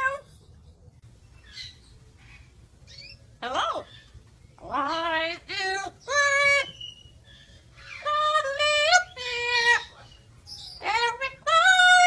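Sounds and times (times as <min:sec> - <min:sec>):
parrot making high-pitched calls: 0:00.0 - 0:00.3.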